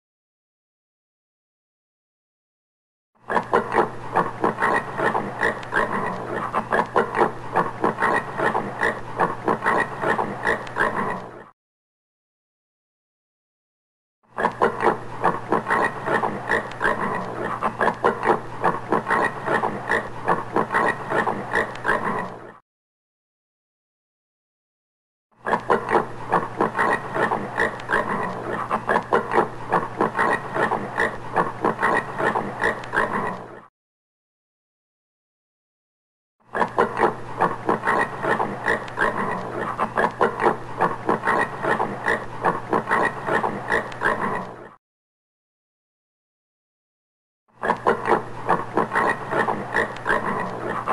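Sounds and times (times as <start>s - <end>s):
warthog grunting: 25.4s - 33.7s, 36.6s - 44.8s, 47.6s - 50.9s.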